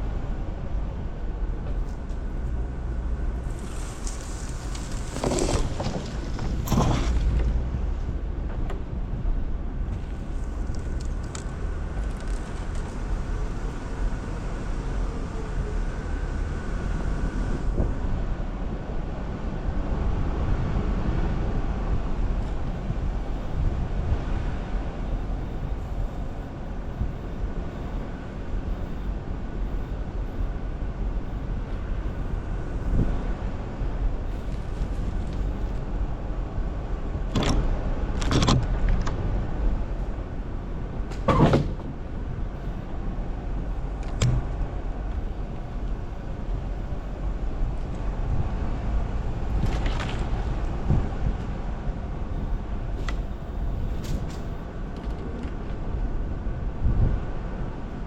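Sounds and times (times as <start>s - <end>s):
vehicle engine at low speed: 0.0s - 58.0s
sharp knocks and clunks: 41.1s - 41.9s, 44.1s - 44.5s.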